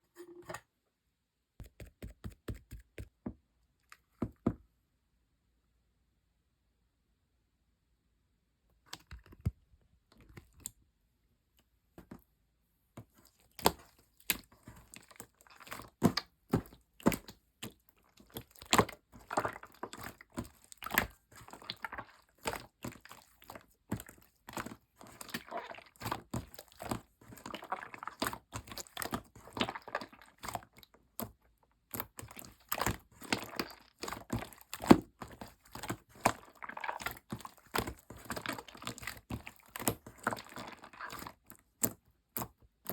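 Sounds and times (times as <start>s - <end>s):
hands squishing slime: 13.0s - 42.9s.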